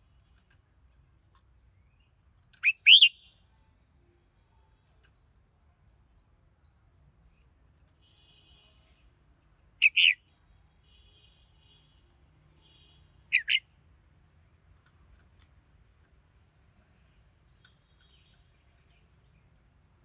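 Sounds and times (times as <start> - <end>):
bird two-note calls: 2.6 - 3.2, 13.3 - 13.6
faint bird twittering: 2.6 - 3.3, 9.4 - 10.2, 13.3 - 13.6.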